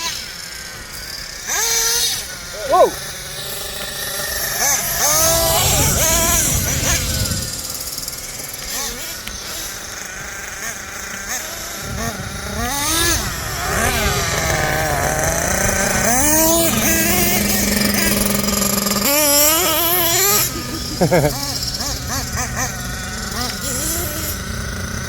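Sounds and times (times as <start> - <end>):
small model engines revving: 0.0 - 25.0.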